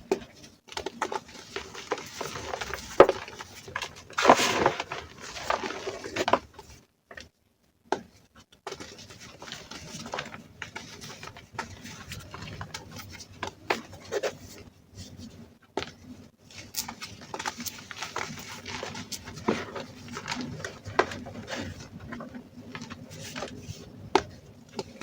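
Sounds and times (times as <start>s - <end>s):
chalk crushing and crumbling: 1.0s - 6.4s.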